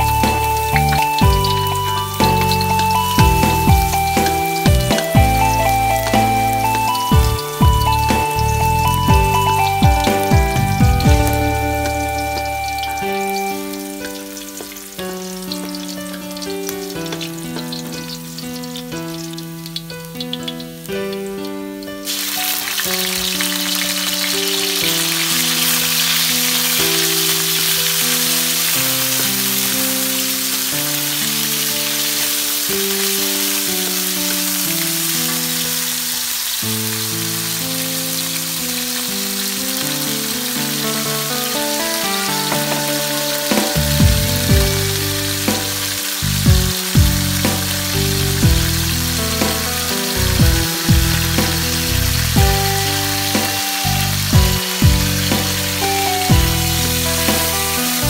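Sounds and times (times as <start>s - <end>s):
heavy beat: 0.0s - 13.1s, 42.4s - 48.8s, 49.4s - 49.8s, 50.4s - 58.0s
background music: 0.0s - 58.0s
beef and garlic sizzling in oil: 0.0s - 58.0s.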